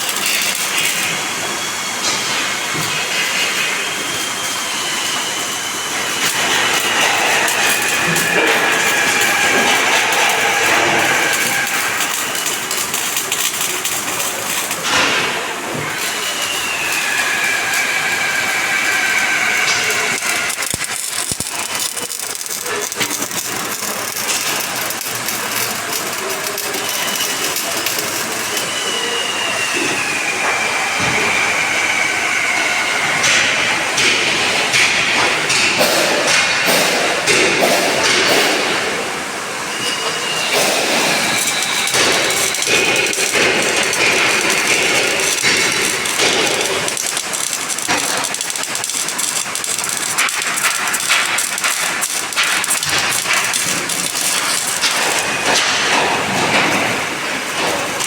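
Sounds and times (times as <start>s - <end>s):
crackling hiss: 40.5s - 55.6s.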